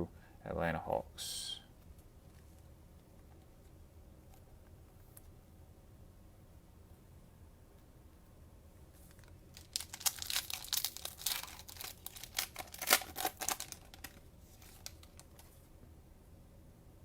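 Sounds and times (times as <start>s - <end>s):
cellophane wrapper crinkling: 9.0s - 15.5s.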